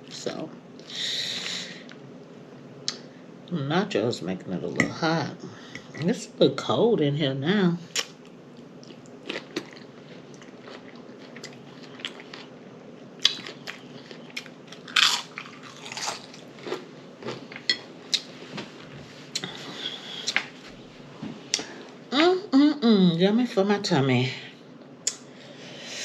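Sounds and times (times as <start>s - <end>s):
person chewing and crunching food: 8.0s - 18.5s.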